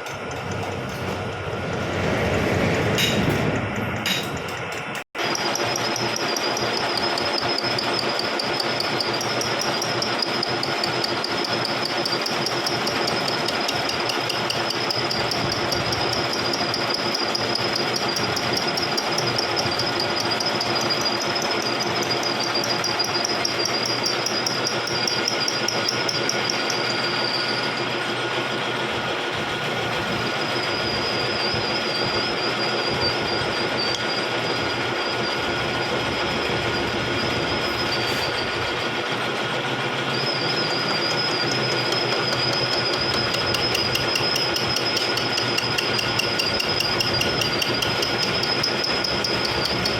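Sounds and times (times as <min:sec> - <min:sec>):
milling machine running: 0:00.0 - 0:49.9
wavering high-pitched whine: 0:29.5 - 0:39.0.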